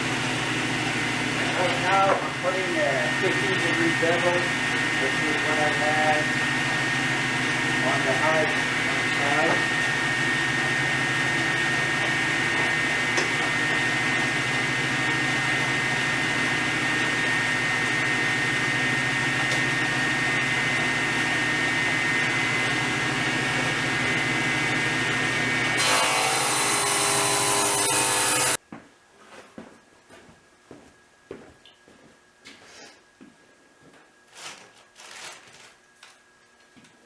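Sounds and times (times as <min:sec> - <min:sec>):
power saw cutting wood: 0:00.0 - 0:28.6.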